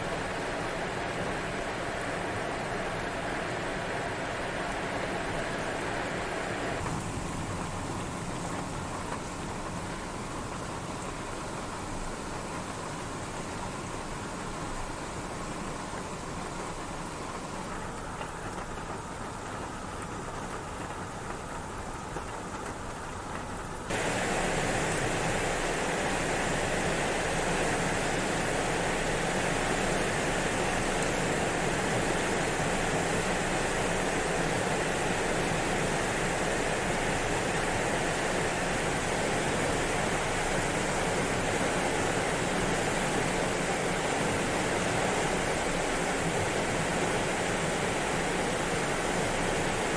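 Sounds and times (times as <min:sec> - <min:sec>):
river rushing: 0:00.0 - 0:07.4, 0:23.9 - 0:49.9.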